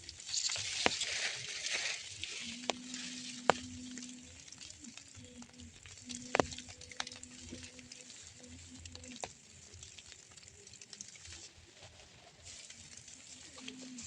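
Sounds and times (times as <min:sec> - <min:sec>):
drizzle pattering: 0:00.0 - 0:14.0
low steady hum: 0:00.0 - 0:14.0
sharp drips: 0:00.0 - 0:14.0
soft hiss: 0:00.0 - 0:14.0.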